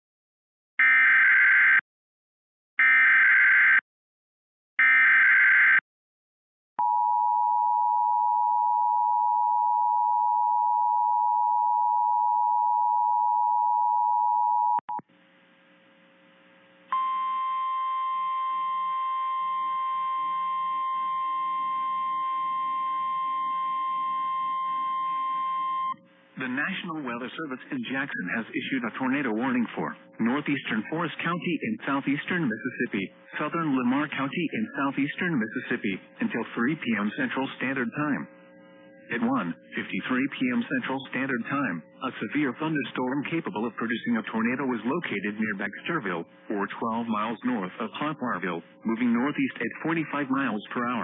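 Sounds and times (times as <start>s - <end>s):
steady warning tone: 16.9s - 26.1s.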